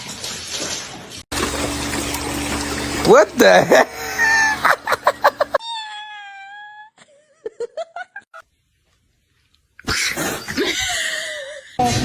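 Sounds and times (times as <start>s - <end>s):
cat meowing: 9.8s - 11.4s.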